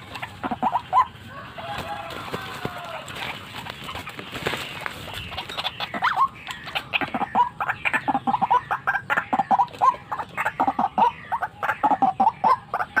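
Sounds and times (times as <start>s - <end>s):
bird calling harsh notes: 0.0s - 13.0s.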